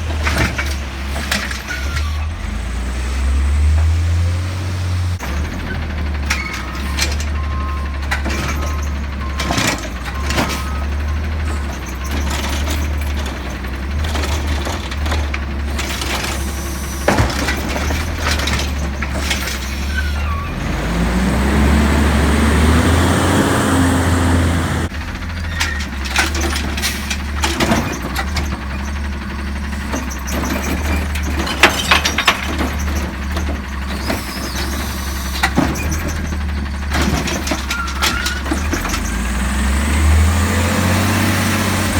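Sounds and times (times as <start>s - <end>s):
truck diesel engine running: 0.0s - 41.9s
recyclables crashing into hopper: 5.2s - 20.2s, 29.8s - 39.2s.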